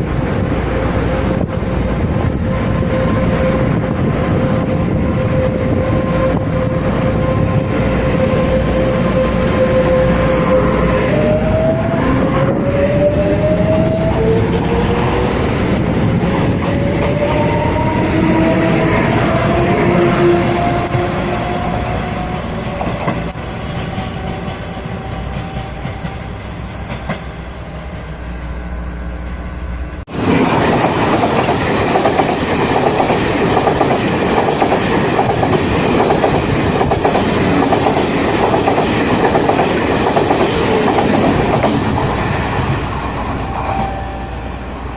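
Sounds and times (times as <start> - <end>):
train whine and rumble: 0.0 - 44.9
train wheels clattering on rails: 20.5 - 27.4, 30.1 - 44.1.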